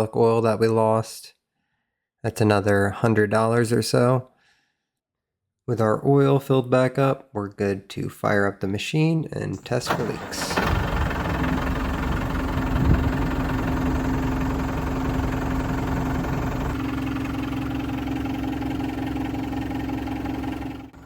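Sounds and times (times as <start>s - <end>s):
diesel engine idling: 9.9s - 21.0s.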